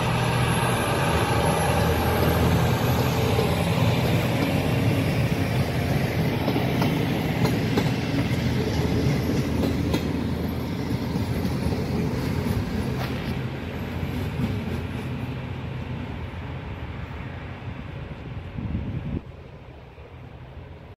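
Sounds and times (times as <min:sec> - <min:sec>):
train rolling past: 0:00.0 - 0:20.9
wheels clicking over rail joints: 0:03.0 - 0:15.1.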